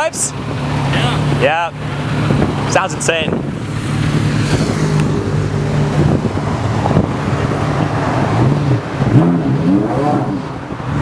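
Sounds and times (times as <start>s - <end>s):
sports car engine revving: 0.3s - 11.0s.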